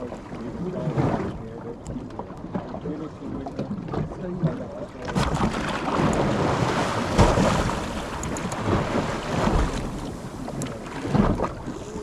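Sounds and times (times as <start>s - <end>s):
sea and boat noise: 0.0s - 12.0s
wind buffeting microphone: 0.0s - 12.0s.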